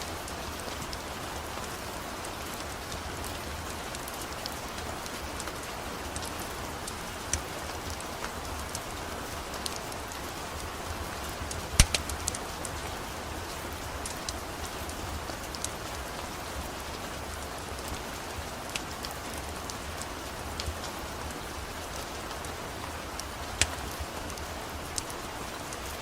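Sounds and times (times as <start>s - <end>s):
steady rain: 0.0s - 26.0s
wood fire crackling: 0.0s - 26.0s.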